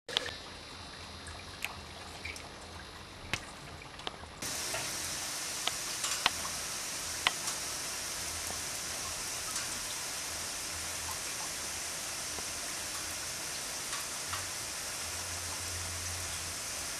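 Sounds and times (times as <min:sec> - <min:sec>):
water spraying and pattering: 0:03.4 - 0:16.9.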